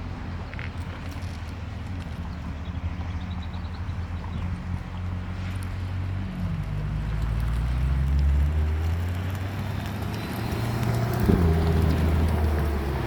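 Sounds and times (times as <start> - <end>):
engine revving: 6.2 - 13.0.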